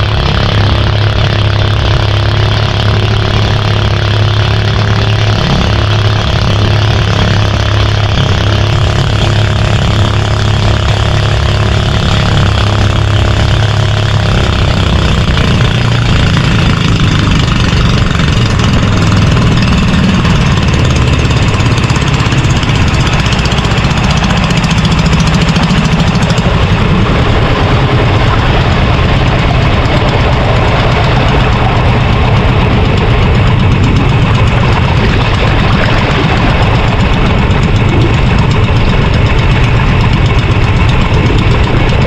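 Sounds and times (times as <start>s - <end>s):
boat engine running: 0.0s - 42.0s
constant rushing noise: 0.0s - 42.0s.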